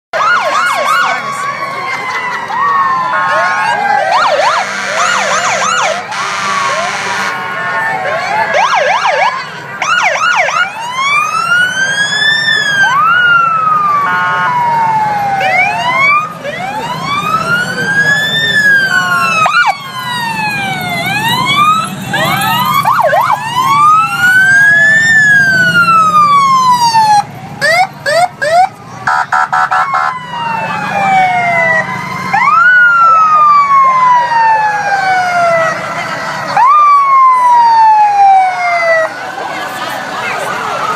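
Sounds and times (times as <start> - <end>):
wail siren: 0.2 - 40.9
yelp siren sweeps: 0.2 - 40.9
short horn blasts: 5.9 - 7.8.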